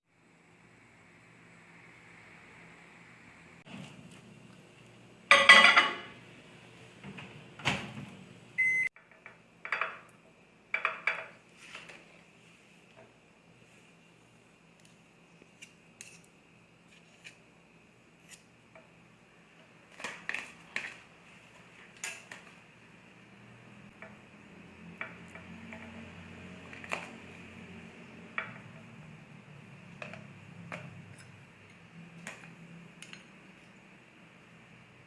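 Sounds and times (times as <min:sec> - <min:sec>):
kitchen utensils and dishes clinking: 0:05.3 - 0:06.2
low steady hum: 0:08.2 - 0:20.0.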